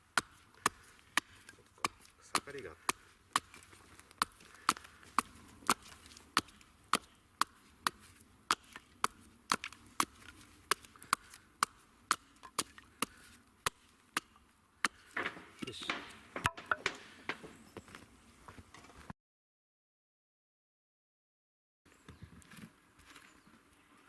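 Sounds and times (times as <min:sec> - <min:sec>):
chopping into wood: 0:00.1 - 0:17.6.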